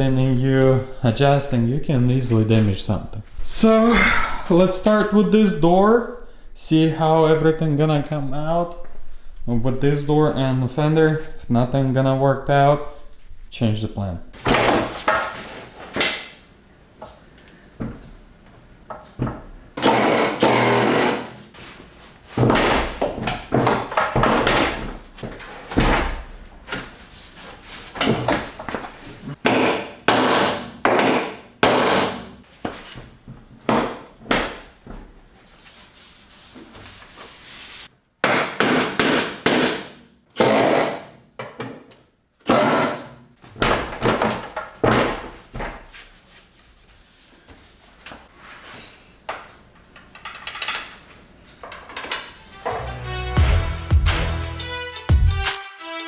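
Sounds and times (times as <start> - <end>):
metal clanks and knocks: 49.3 - 51.0, 51.6 - 53.0.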